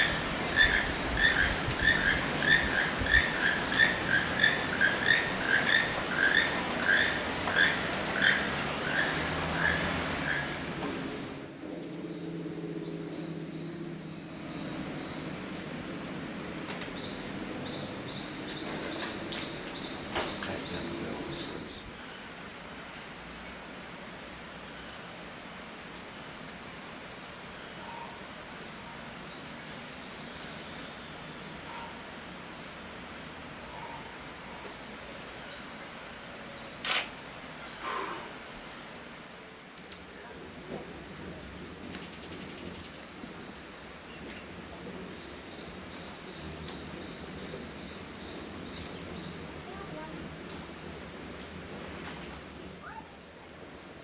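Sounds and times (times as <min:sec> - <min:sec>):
faint high chirps: 0:30.6 - 0:37.0
insect buzz: 0:31.4 - 0:51.5.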